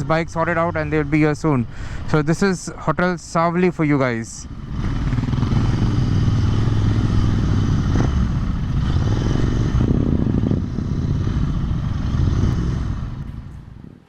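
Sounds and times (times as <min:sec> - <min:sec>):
motorcycle engine idling: 0:04.4 - 0:13.9.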